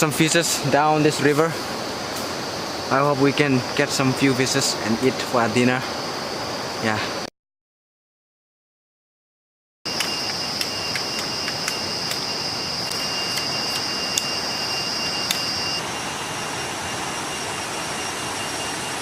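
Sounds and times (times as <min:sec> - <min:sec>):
steady rush of noise: 0:00.0 - 0:07.3, 0:09.9 - 0:19.0
sharp clicks: 0:09.9 - 0:12.2
high-pitched drone: 0:09.9 - 0:19.0.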